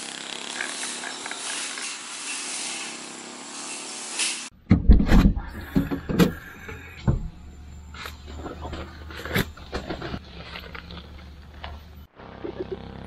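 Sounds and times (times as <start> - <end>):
lawn mower running: 0.0 - 4.5, 7.6 - 13.0
knocks and thuds: 4.6 - 6.4, 7.0 - 7.4.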